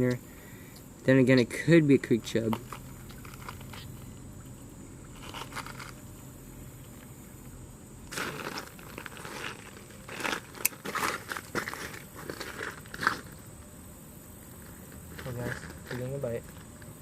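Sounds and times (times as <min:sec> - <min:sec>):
crunching and rustling: 0:02.4 - 0:06.2, 0:08.0 - 0:13.4, 0:14.5 - 0:17.0.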